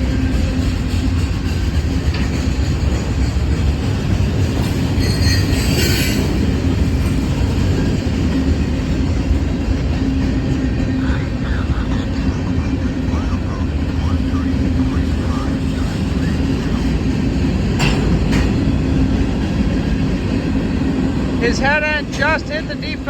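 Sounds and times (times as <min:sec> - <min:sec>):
train wheels rumbling on rail: 0:00.0 - 0:23.0
metallic wheel squeal: 0:04.9 - 0:06.4.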